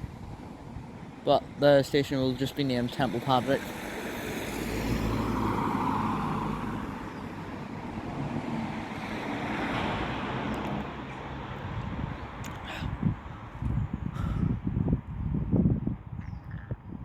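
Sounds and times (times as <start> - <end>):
road traffic going by: 0.0 - 16.9.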